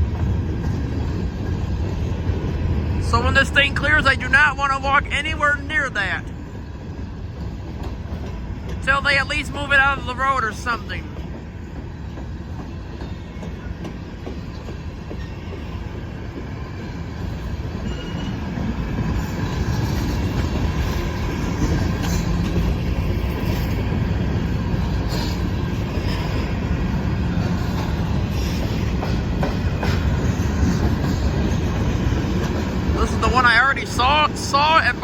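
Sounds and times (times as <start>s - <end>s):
freight train rumbling: 0.0s - 35.0s
wheel squeal: 17.8s - 18.4s.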